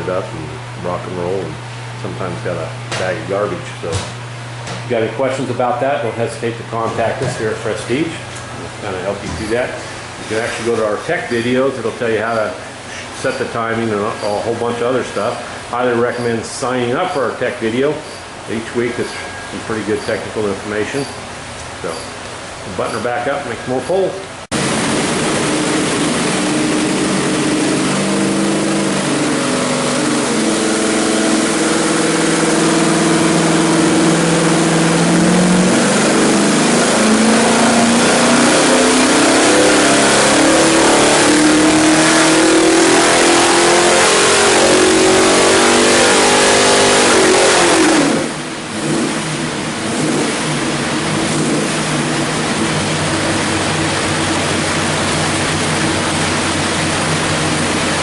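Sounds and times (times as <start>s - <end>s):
car engine revving on dyno: 24.3s - 58.0s.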